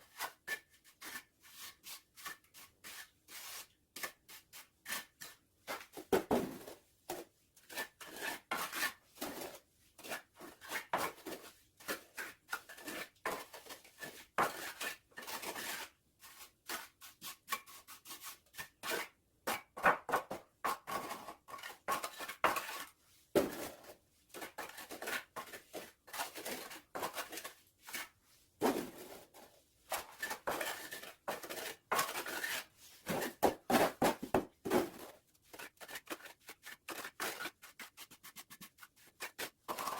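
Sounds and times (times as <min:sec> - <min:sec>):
metal trowel scraping mortar: 0:20.7 - 0:28.1, 0:28.7 - 0:39.9.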